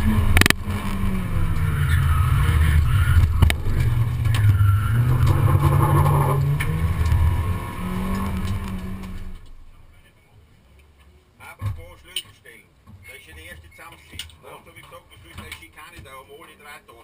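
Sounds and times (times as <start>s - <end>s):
race car engine revving: 0.0s - 9.7s.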